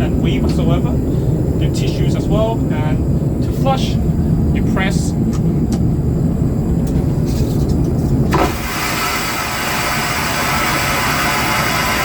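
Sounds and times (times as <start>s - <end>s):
airplane cabin rumble: 0.0s - 12.0s
vacuum toilet flushing: 8.4s - 12.0s.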